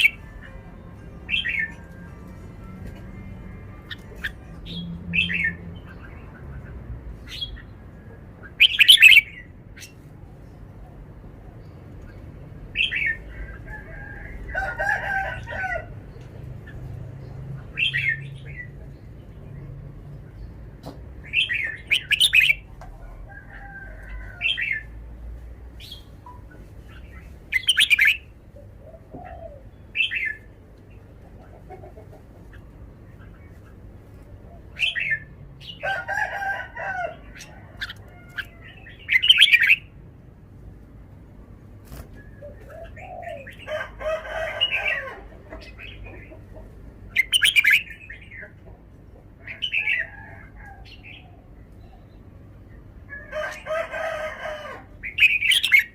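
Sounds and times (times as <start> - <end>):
bird singing: 8.5 - 10.0, 21.2 - 22.7, 25.8 - 30.6, 37.2 - 39.9, 47.1 - 48.6.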